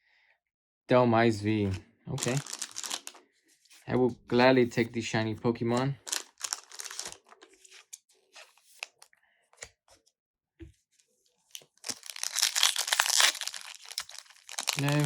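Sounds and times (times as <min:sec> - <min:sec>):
foil wrapper crinkling: 0:02.2 - 0:03.2, 0:06.0 - 0:07.9, 0:11.5 - 0:15.0
wrapper tearing: 0:02.2 - 0:03.2, 0:06.0 - 0:07.9, 0:11.5 - 0:15.0.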